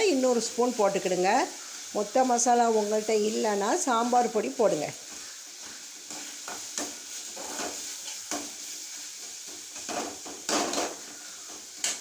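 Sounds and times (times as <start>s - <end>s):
food sizzling in oil: 0.0s - 12.0s
spoon scraping a pan: 5.0s - 12.0s.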